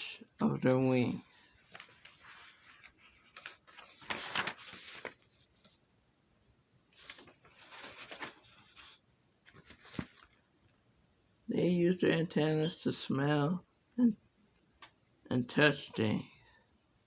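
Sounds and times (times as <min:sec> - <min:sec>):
soft rustling and handling: 0:00.5 - 0:05.9, 0:06.9 - 0:10.8.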